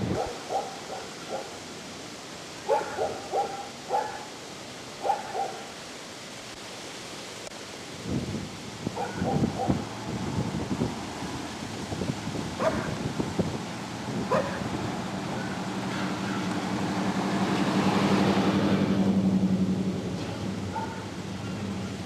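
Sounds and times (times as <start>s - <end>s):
dog barking: 0.1s - 1.6s, 2.6s - 4.3s, 5.0s - 5.7s, 9.0s - 9.8s, 12.6s - 13.0s, 14.3s - 14.7s, 20.7s - 21.1s
motor vehicle passing: 9.0s - 22.0s.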